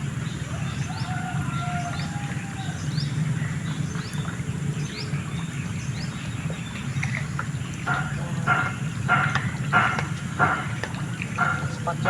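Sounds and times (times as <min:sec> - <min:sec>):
steady low rush: 0:07.9 - 0:12.0.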